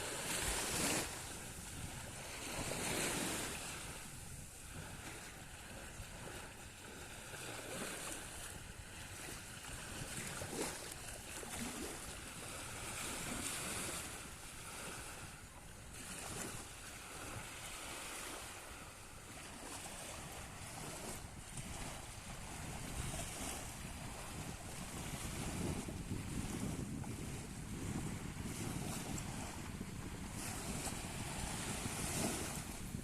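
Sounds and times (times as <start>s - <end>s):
sea waves washing: 0.0s - 6.6s, 16.3s - 33.0s
wind on microphone: 0.0s - 33.0s.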